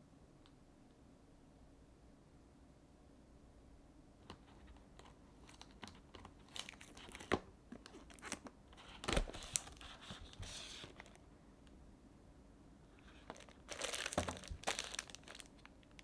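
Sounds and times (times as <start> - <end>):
crinkling and rustling: 4.2 - 11.2, 13.0 - 16.0.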